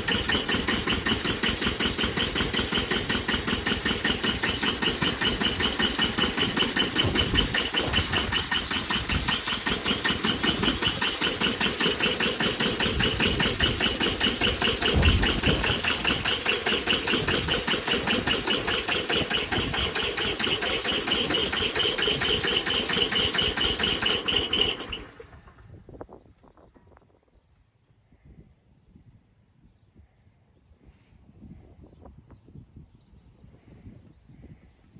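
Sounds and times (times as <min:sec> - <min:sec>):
diesel tractor engine clattering: 0:00.0 - 0:26.9.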